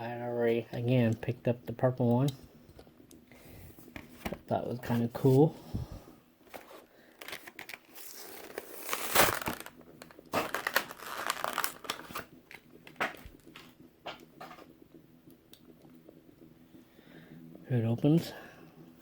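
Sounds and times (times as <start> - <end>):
plastic packaging crinkling: 6.5 - 13.8.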